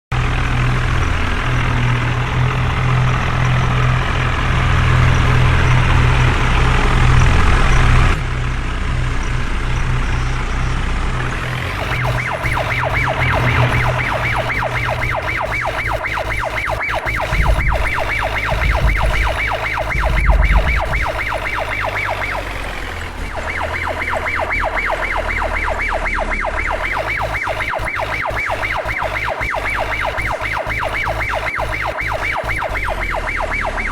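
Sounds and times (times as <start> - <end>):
diesel engine droning: 0.1 - 33.9
fast warbling alarm beeps: 11.4 - 33.9.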